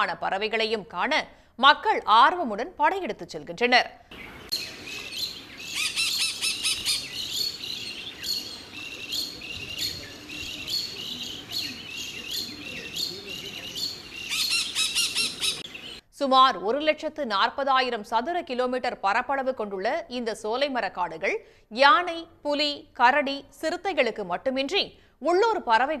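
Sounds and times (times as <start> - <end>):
birds chirping: 4.1 - 16.0.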